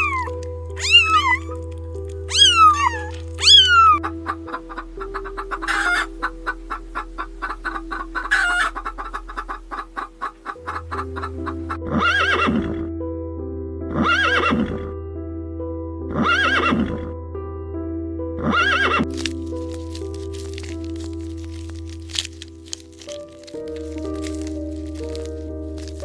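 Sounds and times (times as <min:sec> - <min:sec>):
animal calls: 0:00.0 - 0:01.6, 0:02.3 - 0:12.8
background music: 0:00.0 - 0:26.0.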